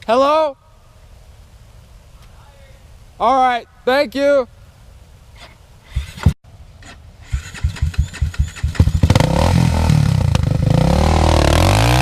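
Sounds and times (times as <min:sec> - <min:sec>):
motorcycle engine starting: 0:05.9 - 0:12.0.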